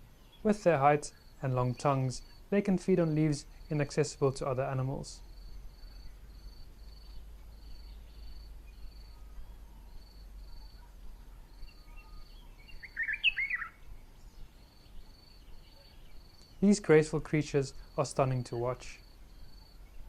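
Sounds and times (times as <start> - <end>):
insect chirping: 0.0 - 20.0
bird call notes: 11.7 - 13.8.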